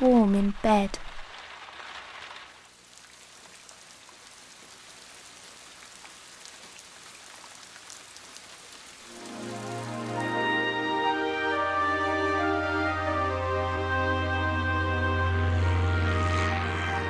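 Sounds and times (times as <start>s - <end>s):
steady rain falling: 0.1s - 17.0s
raindrops ticking on a surface: 0.6s - 10.3s.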